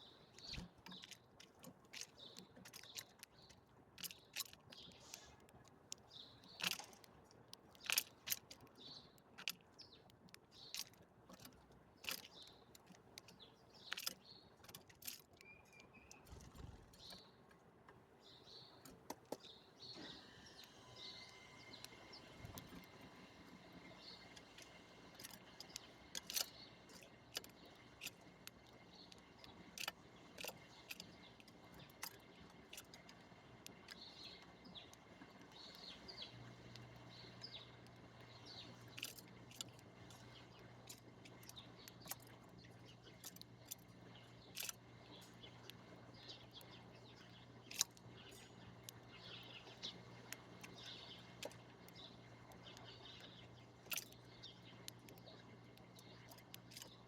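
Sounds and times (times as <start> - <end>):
bird chirps: 0.0 - 1.2, 15.3 - 17.4, 18.2 - 32.8, 33.7 - 57.0
low steady hum: 0.0 - 57.0
sharp clicks: 44.6 - 57.0.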